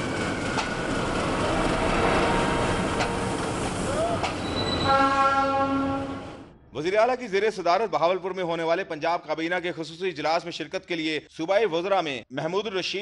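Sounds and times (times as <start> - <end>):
train wheels rumbling on rails: 0.0 - 6.5
steady pitched tone: 0.8 - 6.8.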